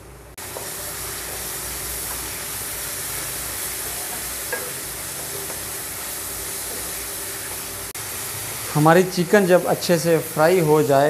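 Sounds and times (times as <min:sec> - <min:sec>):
spatula tapping a pan: 0:00.4 - 0:02.4, 0:04.1 - 0:05.7
chicken sizzling in oil: 0:00.4 - 0:11.0.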